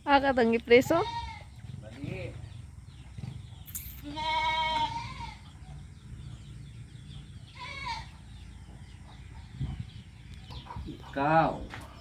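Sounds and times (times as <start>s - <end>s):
goat bleating: 0.8s - 1.6s, 4.0s - 5.6s, 7.5s - 8.2s.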